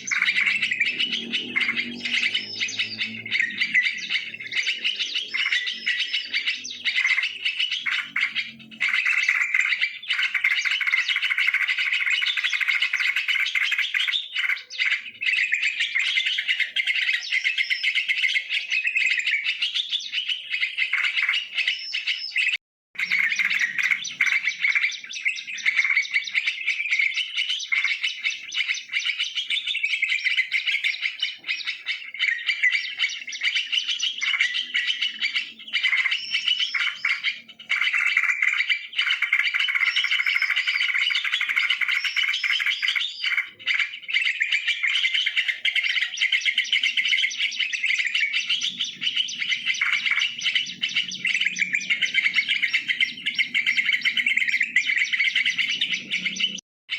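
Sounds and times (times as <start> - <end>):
bulbuls chirping: 0.0 - 56.6.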